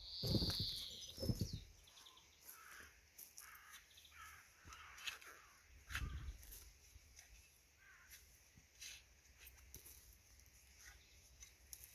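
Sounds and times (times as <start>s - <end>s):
crows cawing: 2.4s - 6.4s, 7.8s - 8.2s.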